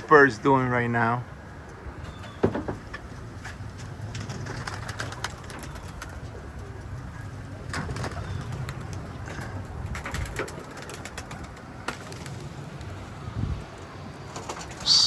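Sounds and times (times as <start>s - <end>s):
pigeons cooing: 14.7s - 15.0s.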